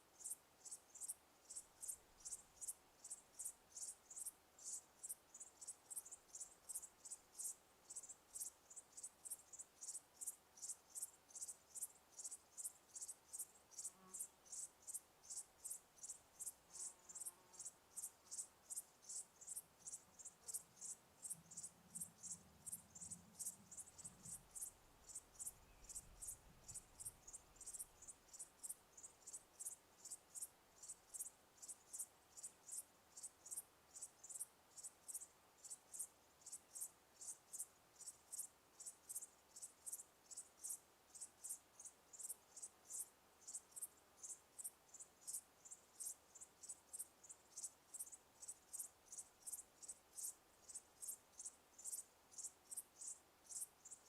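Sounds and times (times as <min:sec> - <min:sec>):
cricket chirping: 0:00.0 - 0:54.0.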